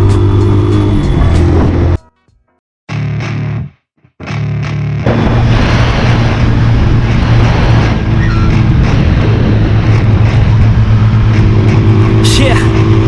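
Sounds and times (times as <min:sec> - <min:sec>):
motorcycle engine running: 0:00.0 - 0:02.0
dense rushing noise: 0:05.1 - 0:13.0.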